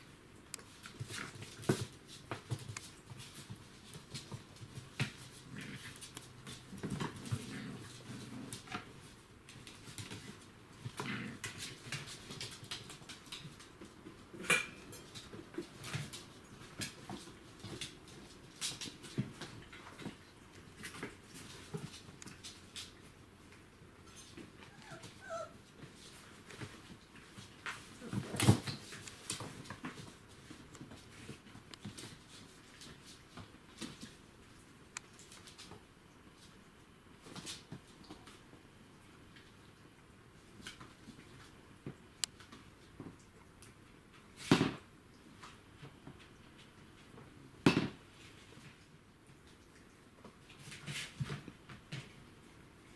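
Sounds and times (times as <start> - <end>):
puppies moving about: 0.6 - 36.6
puppy squeaks: 24.7 - 25.6.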